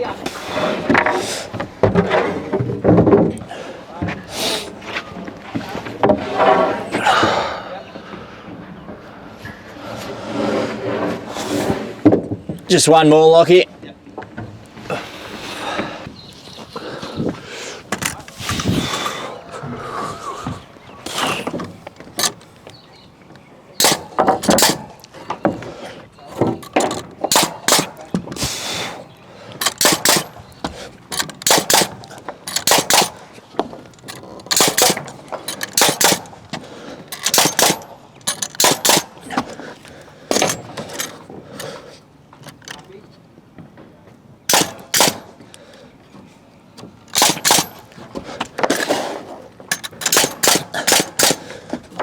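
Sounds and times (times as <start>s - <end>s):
nail gun firing into timber: 23.8s - 25.0s, 26.4s - 28.7s, 29.6s - 30.5s, 31.2s - 33.2s, 34.4s - 36.4s, 37.2s - 39.3s, 44.5s - 45.4s, 47.1s - 48.0s, 49.7s - 51.6s.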